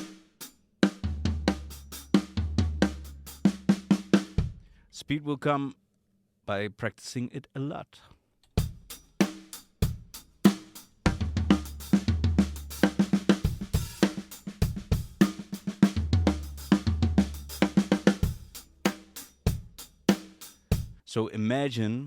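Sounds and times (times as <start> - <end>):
drum kit fill: 0.0 - 4.8, 8.6 - 21.0.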